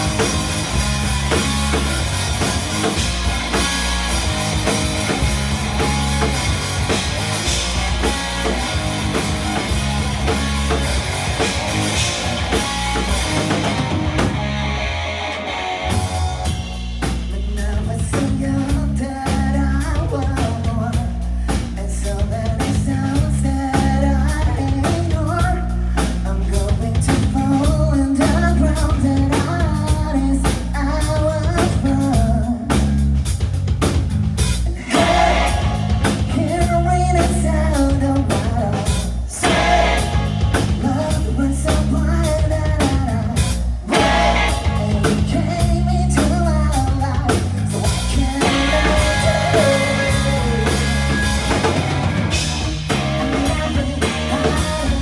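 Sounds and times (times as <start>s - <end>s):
electric guitar: 0.0s - 17.4s, 34.4s - 55.0s
drum kit: 0.0s - 55.0s
person singing: 34.7s - 51.7s, 52.3s - 55.0s.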